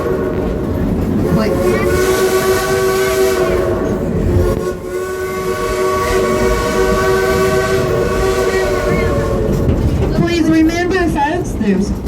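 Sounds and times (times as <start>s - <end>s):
low rumble of moving train: 0.0s - 12.0s
steam locomotive whistle blast: 1.2s - 9.7s.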